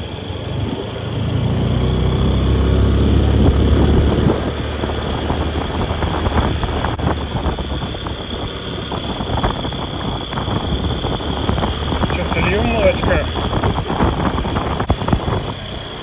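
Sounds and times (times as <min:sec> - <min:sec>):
road noise: 0:00.0 - 0:16.0
vehicle engine running: 0:00.0 - 0:16.0
wind noise: 0:00.0 - 0:16.0.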